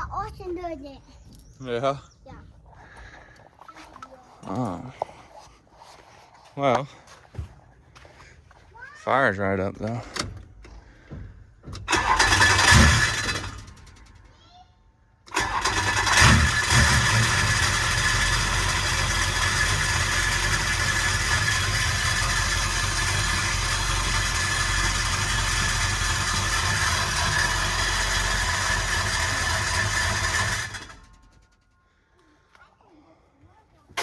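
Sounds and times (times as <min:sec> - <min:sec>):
diesel engine cranking and idling: 0:09.8 - 0:14.4, 0:15.2 - 0:32.0.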